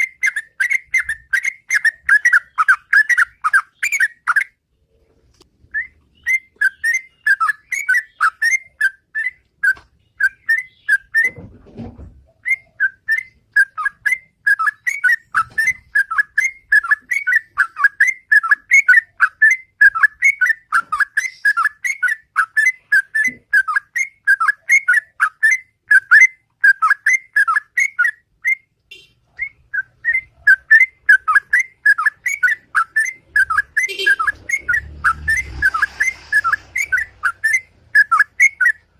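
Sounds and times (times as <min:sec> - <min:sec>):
bird quick whistled notes: 0:31.5 - 0:38.8.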